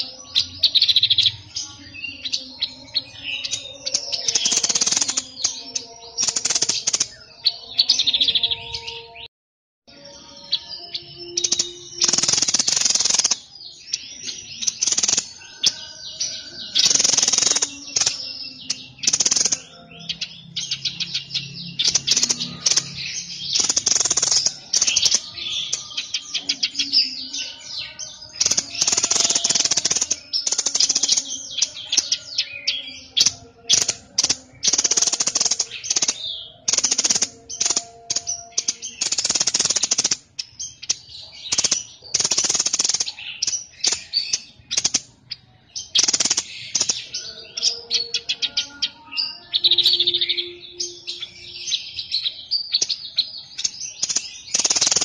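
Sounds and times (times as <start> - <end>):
songbird chattering: 10.5 - 55.0.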